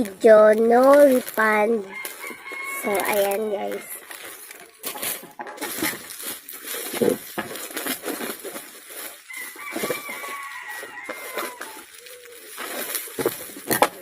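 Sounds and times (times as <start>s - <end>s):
packaging rustling and crinkling: 0.0s - 14.0s
bird calling: 9.3s - 13.3s.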